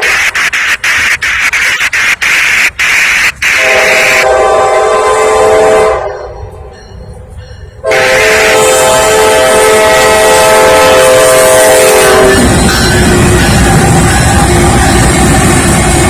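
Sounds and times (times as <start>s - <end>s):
loud crackling noise: 0.0s - 4.2s
locomotive air horn: 3.4s - 6.5s, 7.8s - 15.1s.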